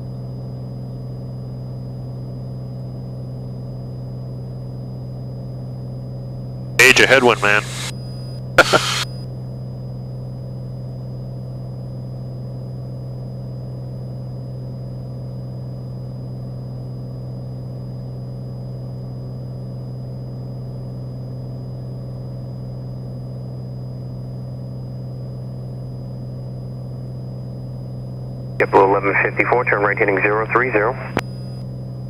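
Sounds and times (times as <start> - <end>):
propeller plane engine droning: 6.8 - 8.0, 28.6 - 31.2.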